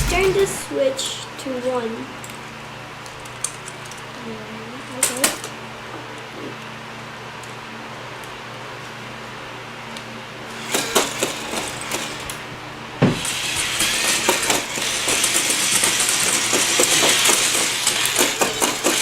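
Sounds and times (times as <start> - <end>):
sharp thump: 0.0 - 0.7
robot toy clicking clatter: 13.4 - 19.0.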